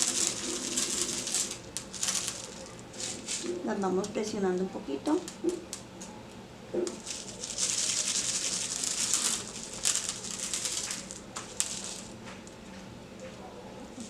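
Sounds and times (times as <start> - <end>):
light clicks of small stones: 0.0 - 4.2, 6.9 - 12.7
stones rattling and crinkling: 0.0 - 5.9, 6.7 - 12.9.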